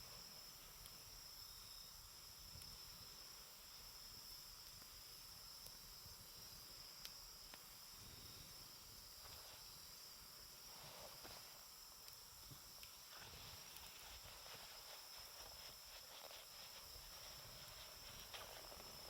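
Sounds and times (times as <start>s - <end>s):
campfire crackling: 0.0s - 19.0s
insects trilling: 0.0s - 19.0s
rustle: 0.0s - 19.0s.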